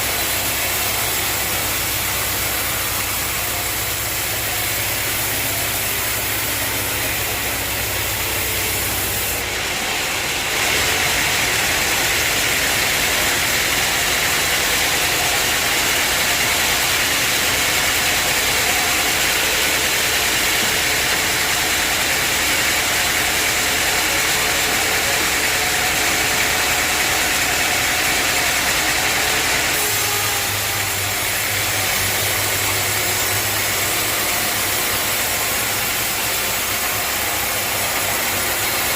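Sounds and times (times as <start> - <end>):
bandsaw cutting a log: 0.0 - 38.9.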